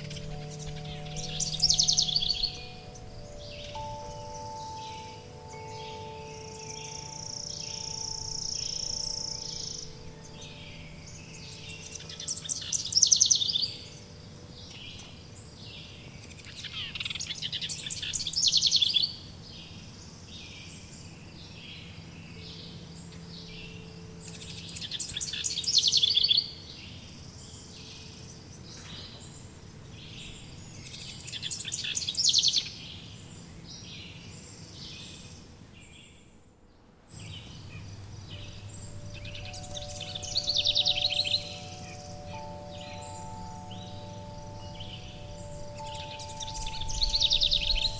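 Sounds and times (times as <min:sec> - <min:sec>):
bird trilling: 0:00.0 - 0:14.1, 0:37.5 - 0:47.9
bird chirps: 0:00.0 - 0:19.8, 0:20.4 - 0:36.3, 0:37.2 - 0:47.9
faint ringing tones: 0:00.0 - 0:20.0, 0:37.2 - 0:47.9.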